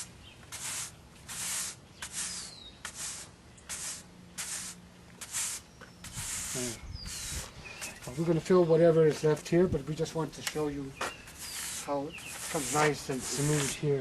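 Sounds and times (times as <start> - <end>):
brush scrubbing asphalt: 0.0 - 8.3, 11.2 - 14.0.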